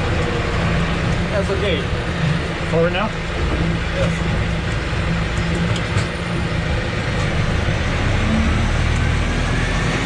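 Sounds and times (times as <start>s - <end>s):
off-road vehicle engine running: 0.0s - 10.0s.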